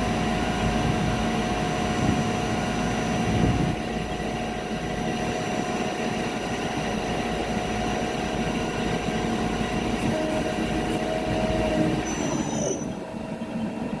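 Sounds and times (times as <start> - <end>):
high wavering squeal: 11.3 - 13.0.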